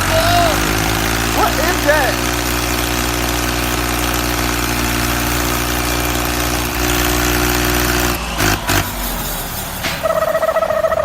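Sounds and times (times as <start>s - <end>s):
engine knocks: 0.0s - 11.0s
truck engine idling: 0.0s - 11.0s.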